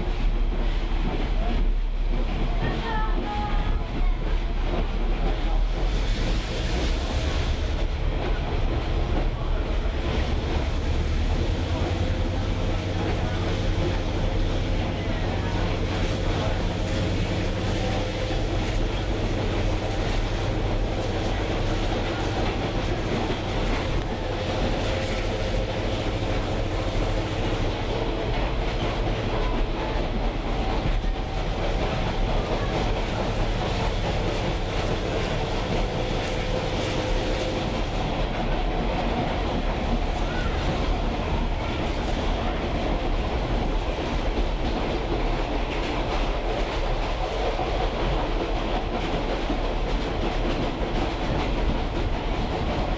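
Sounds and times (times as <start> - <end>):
train wheels on rails: 0.0 - 52.9.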